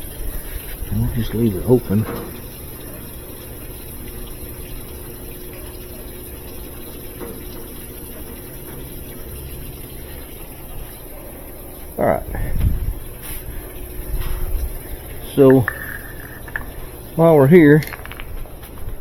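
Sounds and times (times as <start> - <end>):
water running into washing machine: 0.0 - 19.0.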